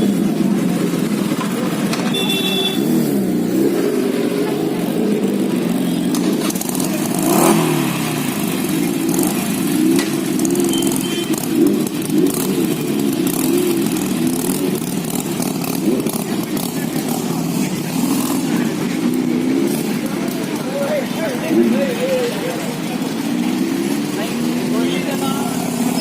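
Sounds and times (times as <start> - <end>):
traffic engines running: 0.0 - 26.0
short high-pitched beeps: 2.1 - 2.9, 10.6 - 11.4.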